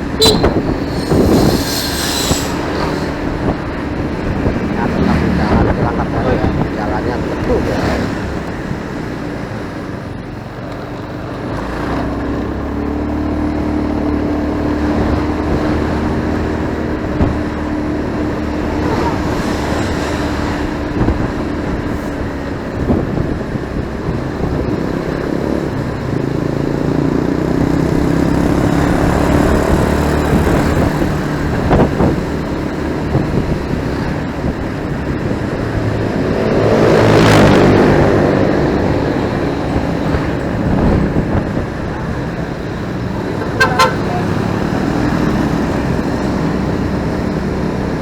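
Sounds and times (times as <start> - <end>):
motorcycle engine running: 0.0 - 1.8, 38.1 - 48.0
road and wind noise: 0.0 - 48.0.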